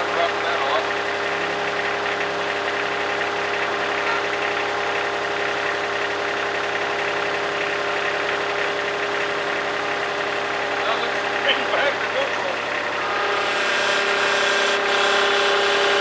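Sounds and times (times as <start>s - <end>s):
diesel engine running steadily: 0.0s - 16.0s.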